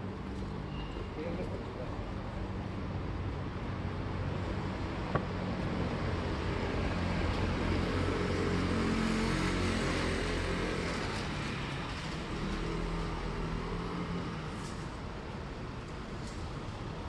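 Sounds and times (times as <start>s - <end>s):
city street noise: 0.0s - 17.0s.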